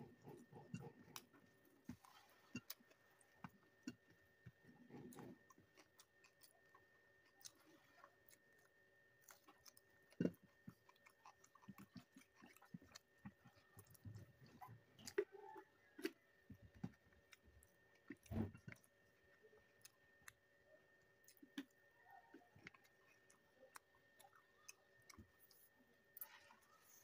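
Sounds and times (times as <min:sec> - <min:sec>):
person chewing: 0:00.0 - 0:20.5, 0:21.1 - 0:27.0.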